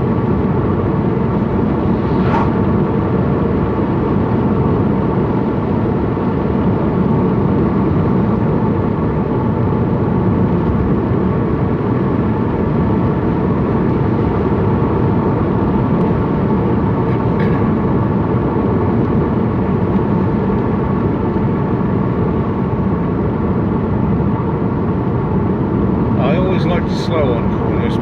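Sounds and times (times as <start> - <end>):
car engine and tyre road noise: 0.0 - 28.0.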